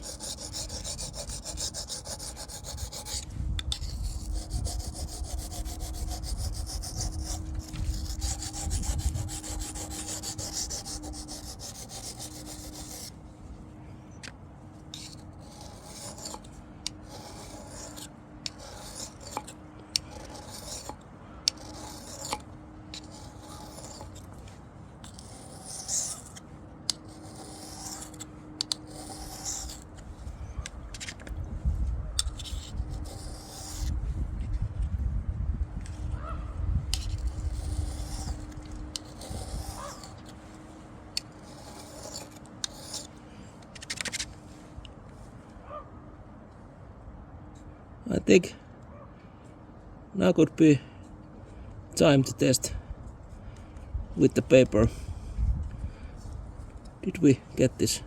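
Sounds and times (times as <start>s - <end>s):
knife scraping on sharpening stone: 0.0s - 13.1s, 14.9s - 24.3s, 25.0s - 30.0s, 32.2s - 33.9s, 36.9s - 40.4s, 41.2s - 43.2s.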